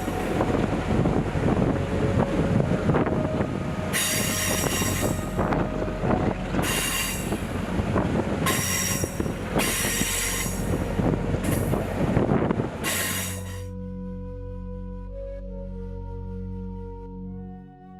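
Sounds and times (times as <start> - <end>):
train cars rumbling over track: 0.0 - 13.7
high-pitched wheel squeal: 3.9 - 5.8, 6.6 - 7.5, 8.5 - 11.8.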